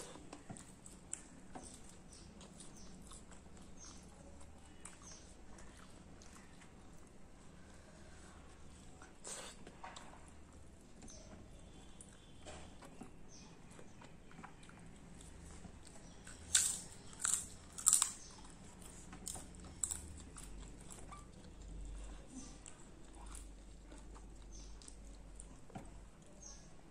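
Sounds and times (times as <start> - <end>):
soft chewing clicks: 0.0 - 26.9
sharp crunches of biting: 16.3 - 18.3.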